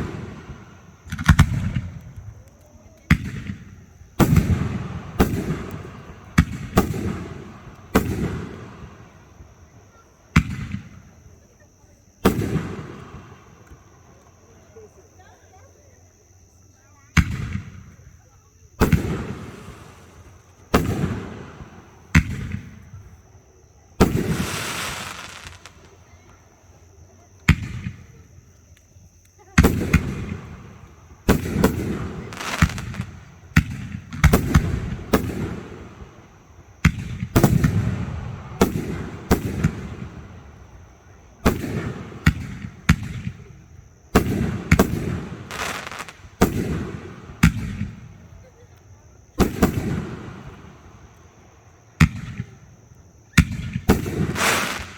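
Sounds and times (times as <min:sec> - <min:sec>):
firework hissing crackle: 0:00.0 - 0:02.1, 0:18.8 - 0:22.9, 0:24.0 - 0:26.4, 0:29.7 - 0:36.3, 0:44.2 - 0:47.7, 0:53.9 - 0:54.9
fireworks booming: 0:00.0 - 0:11.5, 0:12.2 - 0:13.9, 0:18.8 - 0:28.4, 0:29.4 - 0:48.6, 0:49.2 - 0:51.0, 0:53.4 - 0:54.9.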